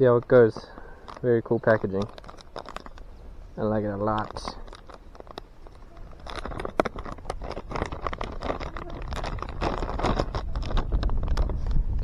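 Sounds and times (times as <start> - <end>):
plastic packet crinkling: 0.0 - 11.8
wind rumble on microphone: 4.2 - 12.0.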